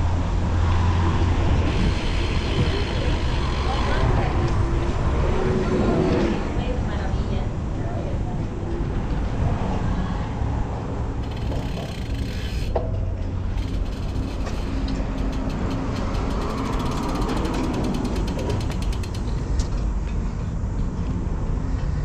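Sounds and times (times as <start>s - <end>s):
wind rumble on microphone: 0.0s - 22.0s
bicycle freehub ticking: 0.6s - 4.6s, 11.1s - 19.8s.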